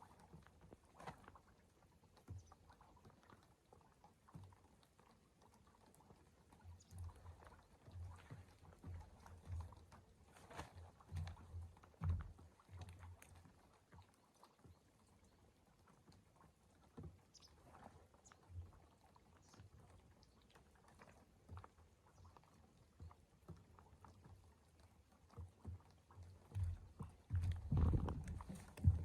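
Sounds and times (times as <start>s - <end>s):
soft low thumps: 26.4s - 29.0s.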